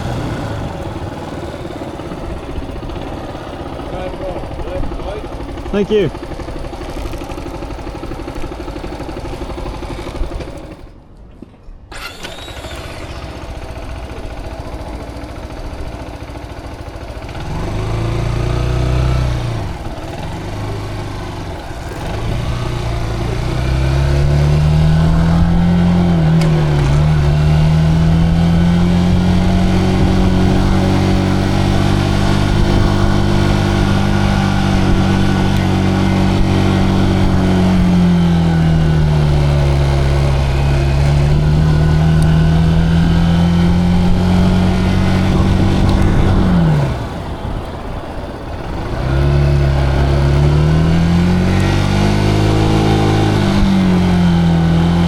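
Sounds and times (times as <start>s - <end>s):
motorcycle engine accelerating: 0.0s - 11.0s, 11.9s - 55.0s.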